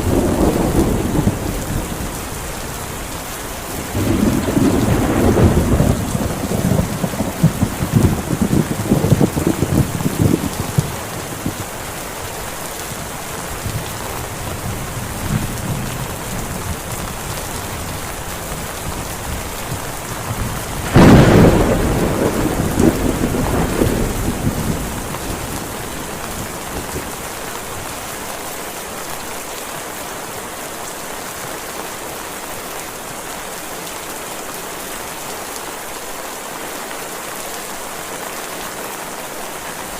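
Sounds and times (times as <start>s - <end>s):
rolling thunder: 0.0s - 2.6s, 3.7s - 11.7s, 19.3s - 27.2s
heavy rain falling: 0.0s - 39.9s
sharp thunderclap: 3.9s - 11.6s, 20.3s - 27.1s.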